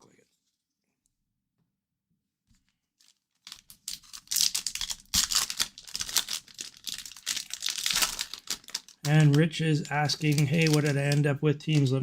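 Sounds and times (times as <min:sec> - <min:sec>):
wrapper tearing and crinkling: 0:03.0 - 0:11.9.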